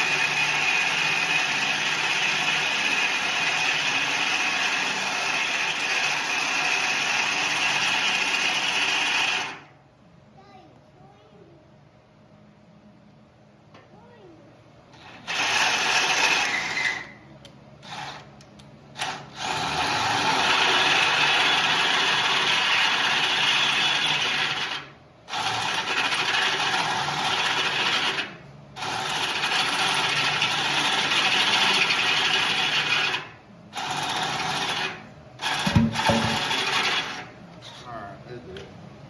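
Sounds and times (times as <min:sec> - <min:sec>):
electric drill boring into steel: 0:00.0 - 0:09.7, 0:15.0 - 0:17.2, 0:17.8 - 0:18.3, 0:19.0 - 0:37.3
knock: 0:35.7 - 0:36.5.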